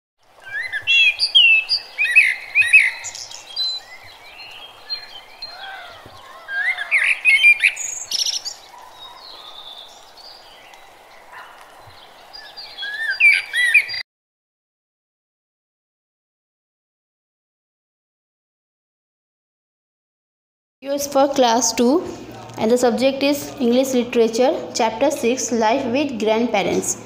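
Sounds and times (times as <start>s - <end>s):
birds chirping and singing: 0.4s - 14.0s.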